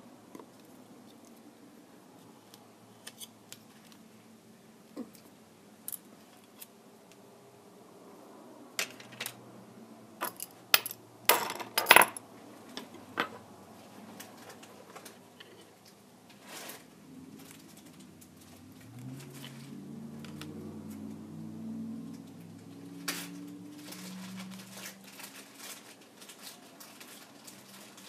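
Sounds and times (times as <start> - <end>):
small tools clicking and clinking: 10.2 - 13.4.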